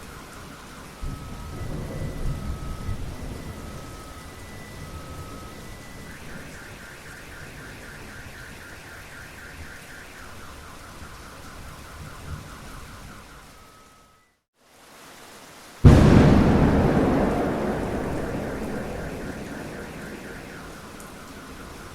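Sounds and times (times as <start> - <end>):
steady rain: 0.0 - 14.0, 14.6 - 21.9
car alarm warbling: 15.9 - 21.9.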